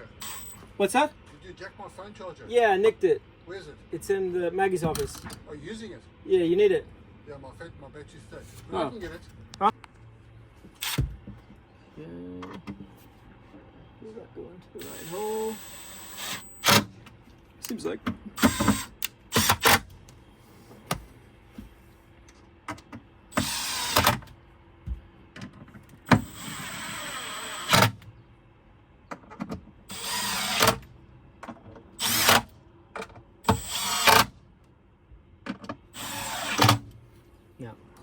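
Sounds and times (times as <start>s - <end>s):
cordless drill driving screws: 0.2s - 0.6s, 14.8s - 16.9s, 18.4s - 19.8s, 23.3s - 24.2s, 26.1s - 28.0s, 29.9s - 30.8s, 32.0s - 32.5s, 33.4s - 34.3s, 36.0s - 36.8s.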